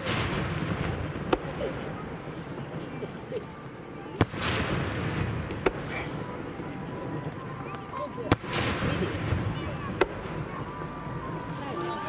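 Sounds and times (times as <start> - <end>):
firework crackle: 0.0 - 12.0
firework shells bursting: 4.2 - 11.4.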